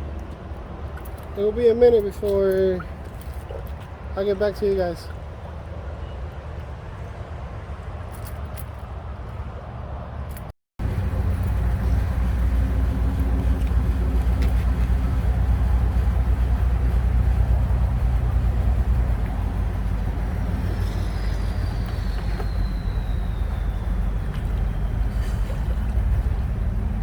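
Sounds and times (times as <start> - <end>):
car engine idling: 10.8 - 27.0.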